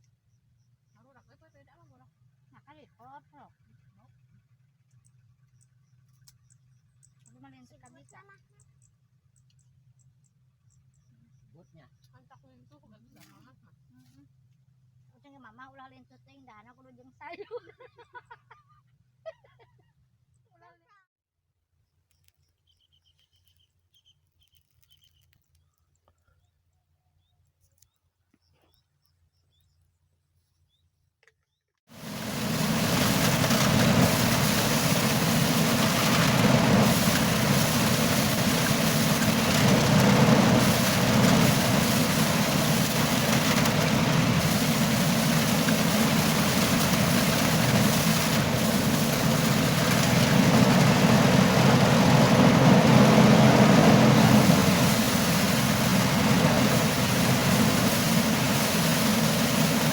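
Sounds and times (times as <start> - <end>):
threshing machine running: 32.0 - 59.9.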